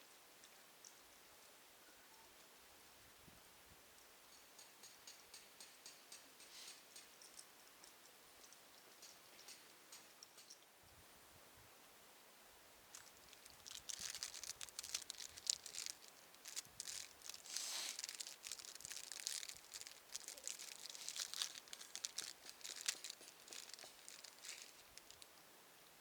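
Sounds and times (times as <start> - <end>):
packaging crinkling and rustling: 12.9 - 25.2.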